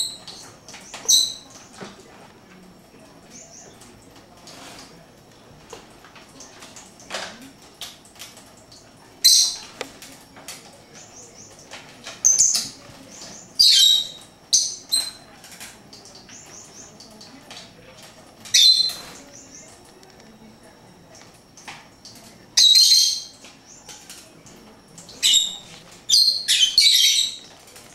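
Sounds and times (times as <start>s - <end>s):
high-pitched bird chirps: 1.0s - 1.5s, 13.3s - 15.2s, 18.5s - 19.6s, 22.6s - 23.4s, 25.2s - 27.5s.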